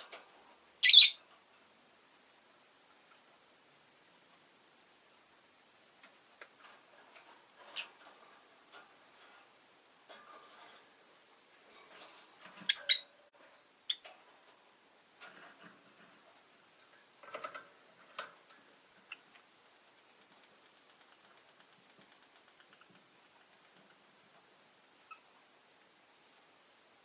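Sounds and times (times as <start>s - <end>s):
lovebirds chirping: 0.8s - 1.2s, 12.6s - 13.2s.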